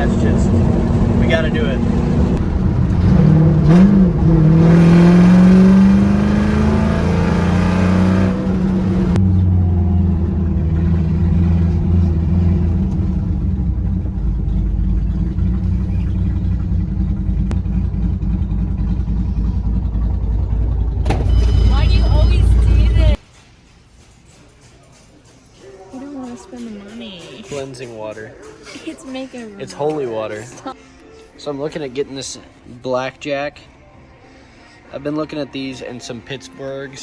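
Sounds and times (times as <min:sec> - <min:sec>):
car engine accelerating: 0:00.0 - 0:23.2.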